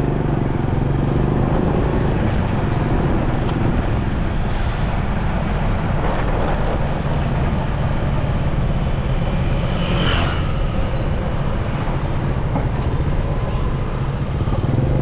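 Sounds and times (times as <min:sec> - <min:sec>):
road noise: 0:00.0 - 0:15.0
motorcycle engine rumble: 0:06.4 - 0:15.0
high-pitched traffic sound: 0:08.0 - 0:15.0.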